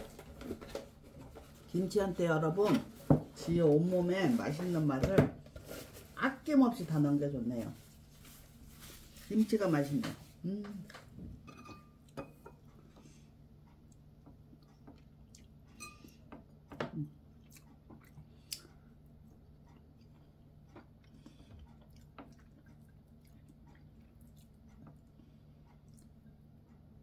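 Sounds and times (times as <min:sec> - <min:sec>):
faint low hum: 0:00.0 - 0:27.0
soft chewing: 0:11.8 - 0:27.0.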